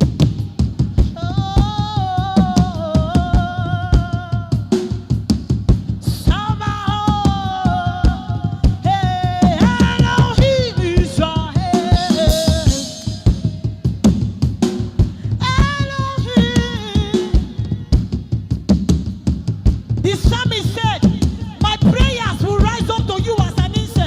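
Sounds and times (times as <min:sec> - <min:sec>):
drum kit beat: 0:00.0 - 0:24.0
woman singing: 0:01.1 - 0:05.1, 0:06.0 - 0:13.8, 0:15.4 - 0:18.0, 0:20.0 - 0:24.0.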